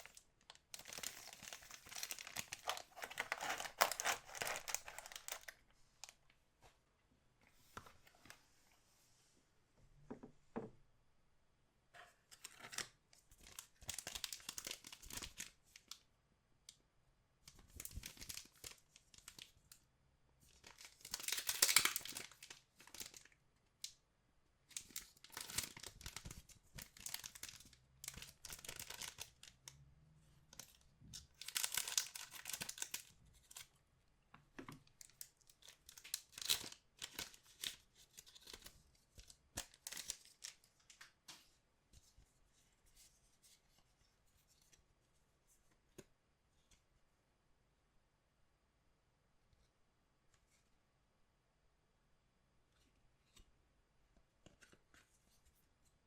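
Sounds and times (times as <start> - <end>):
plastic wrapping tearing and crinkling: 0.0 - 5.6, 12.5 - 15.9, 20.6 - 23.2, 24.7 - 29.5, 31.3 - 33.6, 35.0 - 38.7.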